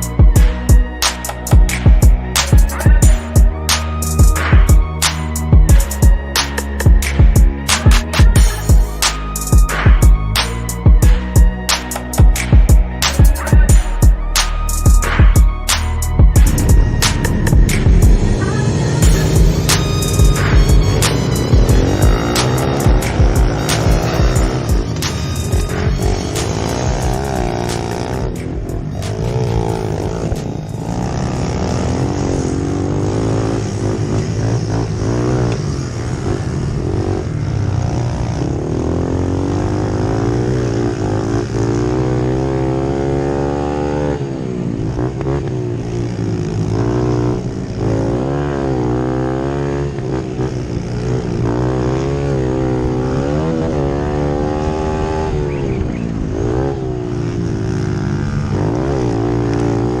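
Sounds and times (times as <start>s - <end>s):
vehicle engine running: 0.0s - 42.8s.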